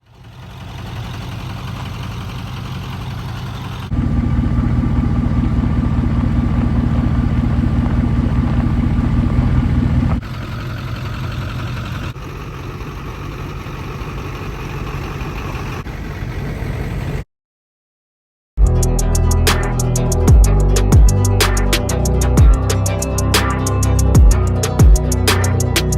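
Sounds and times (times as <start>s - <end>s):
diesel truck engines idling: 0.0s - 17.2s.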